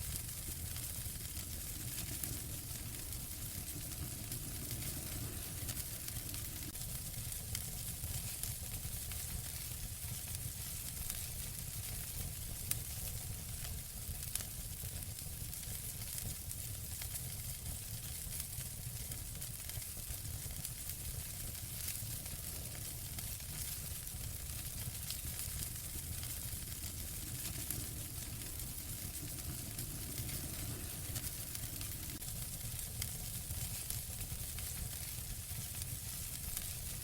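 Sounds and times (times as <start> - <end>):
fire crackles and pops: 0.0 - 37.0
wood fire burning: 0.0 - 37.0.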